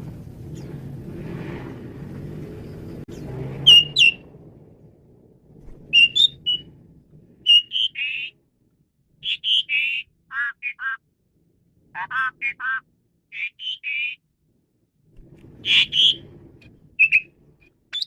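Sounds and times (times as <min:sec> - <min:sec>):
starling whistled calls: 0:03.1 - 0:04.2, 0:05.9 - 0:06.7, 0:07.4 - 0:08.4, 0:09.2 - 0:11.0, 0:13.4 - 0:14.2, 0:15.6 - 0:16.2, 0:17.0 - 0:17.3.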